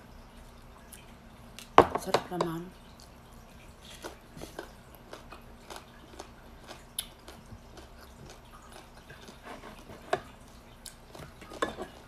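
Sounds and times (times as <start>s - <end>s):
wet chewing and mouth sounds: 2.8s - 12.0s.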